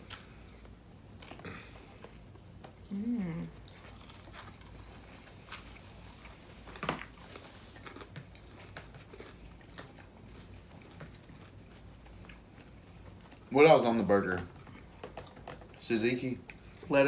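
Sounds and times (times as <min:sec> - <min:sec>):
chewing and biting: 0:00.0 - 0:13.5, 0:14.2 - 0:15.8
person humming: 0:02.9 - 0:03.6.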